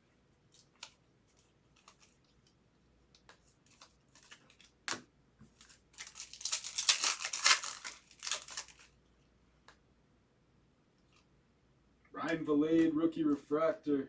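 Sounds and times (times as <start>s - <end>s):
foil wrapper crinkling: 0.5s - 2.6s, 3.2s - 9.0s
foil wrapper ripping: 0.6s - 2.4s, 5.6s - 9.0s.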